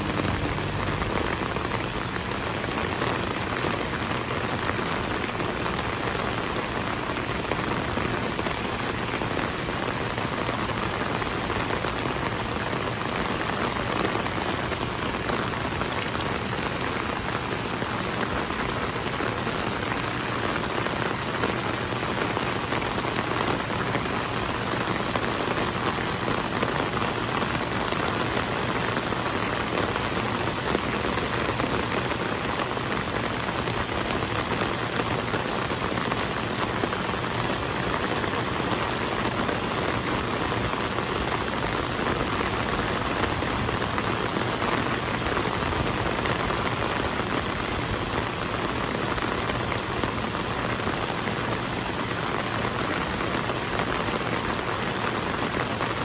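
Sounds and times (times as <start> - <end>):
heavy rain on water and pavement: 0.0 - 56.0.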